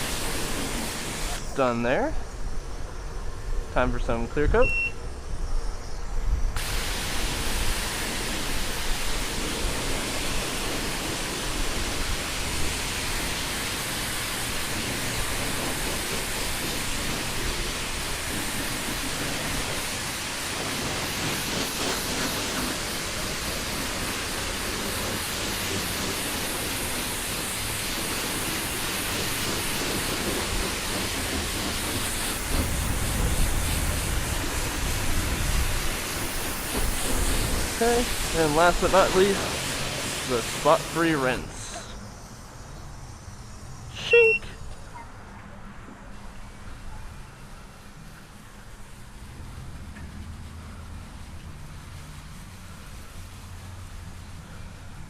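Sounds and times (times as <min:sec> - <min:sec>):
high-pressure spray hissing: 0:00.0 - 0:04.8, 0:06.6 - 0:45.0, 0:46.2 - 0:55.0.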